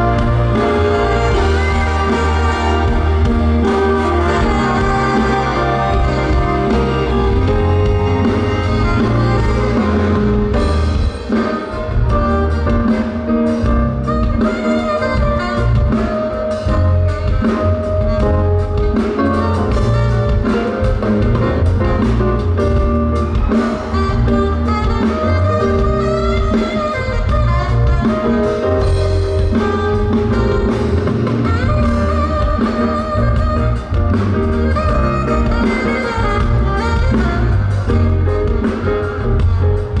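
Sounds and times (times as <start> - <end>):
drum kit beat: 0.0 - 40.0
live band music over loudspeakers: 0.0 - 40.0.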